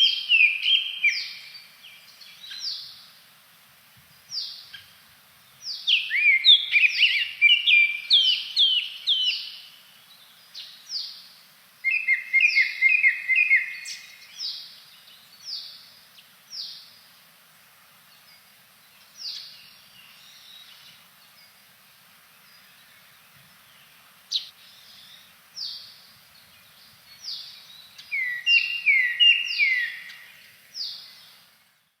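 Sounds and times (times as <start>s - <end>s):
bird singing whistled notes: 0.0s - 3.1s, 5.6s - 15.9s, 19.1s - 21.6s, 23.6s - 31.4s.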